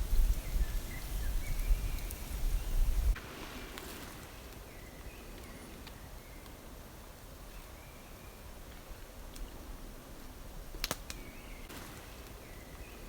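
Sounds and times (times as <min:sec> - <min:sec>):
small birds chirping: 0:00.0 - 0:03.2.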